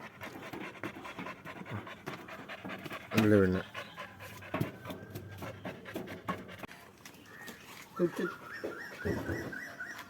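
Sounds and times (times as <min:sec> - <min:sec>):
dog panting: 0:00.0 - 0:07.0.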